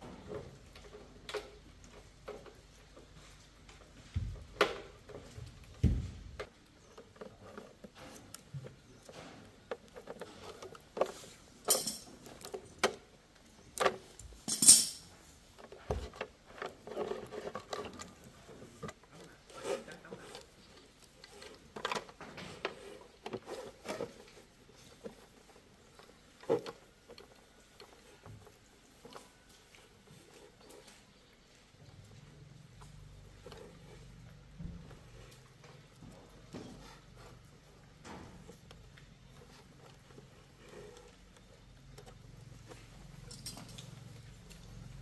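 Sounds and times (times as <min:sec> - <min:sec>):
metal tools clinking: 0:11.6 - 0:12.4, 0:14.4 - 0:15.2, 0:43.2 - 0:44.0.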